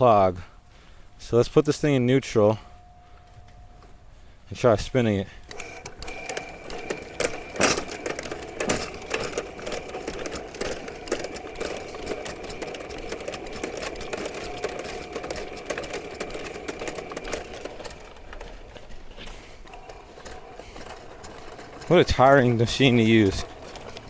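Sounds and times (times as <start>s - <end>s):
cable rattling in pipe: 5.4s - 24.0s
drain machine motor humming: 5.4s - 24.0s.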